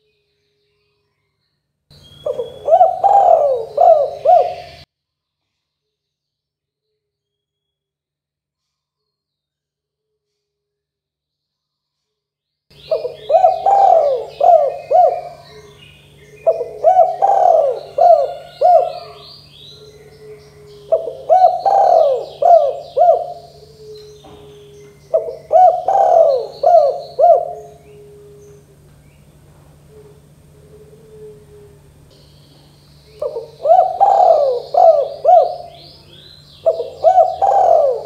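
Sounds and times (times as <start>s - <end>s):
high bird chirping: 1.9s - 4.9s, 12.7s - 29.4s, 32.1s - 38.0s
dove cooing: 2.2s - 4.8s, 12.8s - 38.0s.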